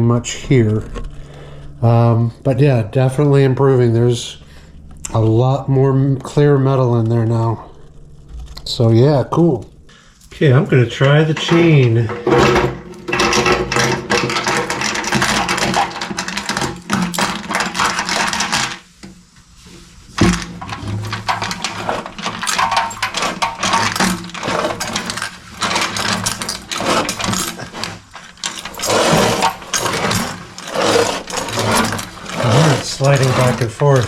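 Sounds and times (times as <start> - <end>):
chain rattling inside metal tank: 10.2 - 18.8, 20.1 - 34.0.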